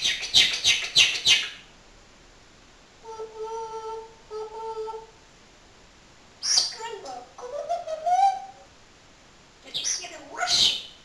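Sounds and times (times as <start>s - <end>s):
parrot hum-like tones: 3.0s - 5.2s.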